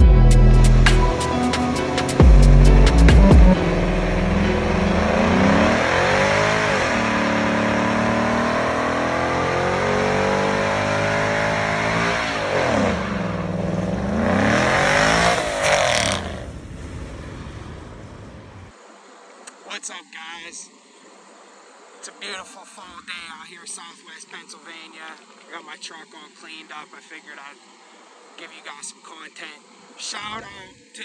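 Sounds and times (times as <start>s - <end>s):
car engine revving: 0.0s - 18.7s.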